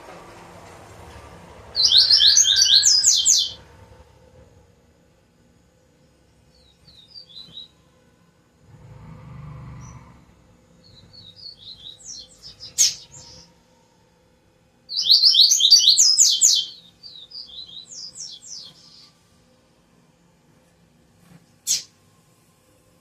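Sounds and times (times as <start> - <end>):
songbird chirping: 1.7 - 3.7, 14.9 - 19.1.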